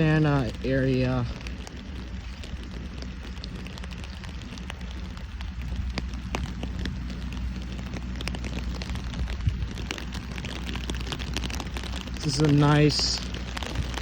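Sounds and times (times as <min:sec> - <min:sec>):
rain pattering: 0:00.0 - 0:14.0
steady low hum: 0:00.0 - 0:14.0.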